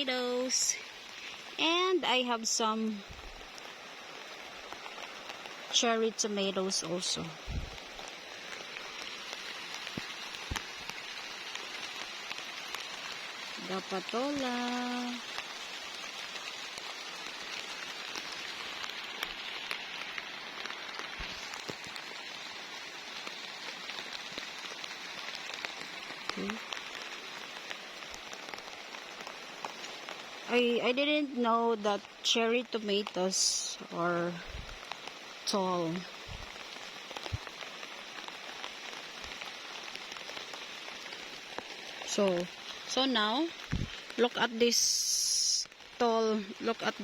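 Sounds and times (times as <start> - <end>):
raindrops ticking: 0.0 - 47.0
steady rain hissing: 0.0 - 47.0
soft low thuds: 7.5 - 7.8.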